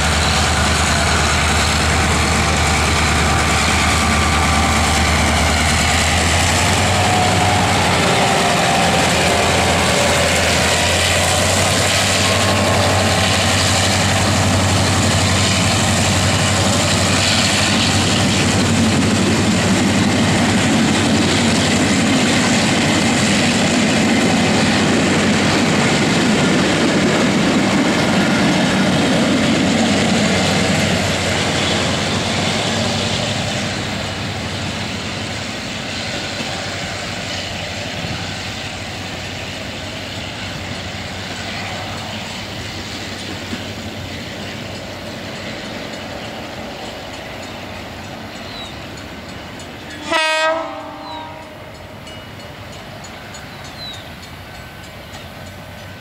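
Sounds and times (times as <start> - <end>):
diesel locomotive horn blast: 0.0 - 13.6, 49.9 - 52.0
train coaches rumbling past: 0.0 - 56.0.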